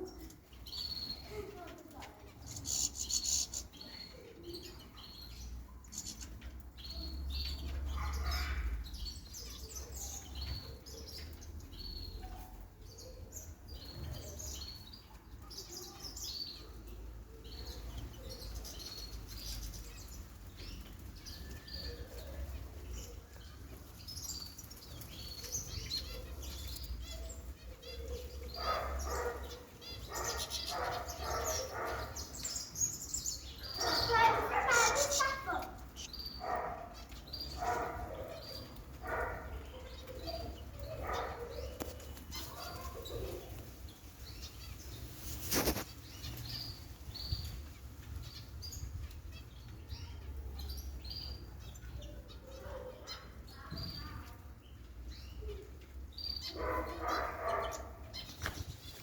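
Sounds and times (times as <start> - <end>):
bird wing flutters: 45.2 - 46.0.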